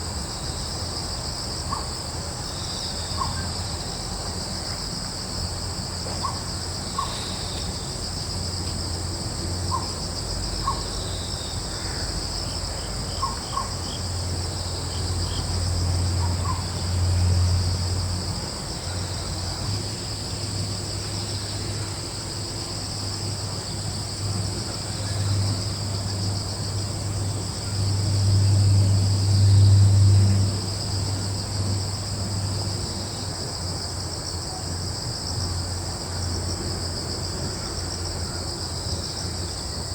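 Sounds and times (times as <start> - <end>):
crickets trilling: 0.0 - 39.9
low breeze rumble: 0.0 - 39.9.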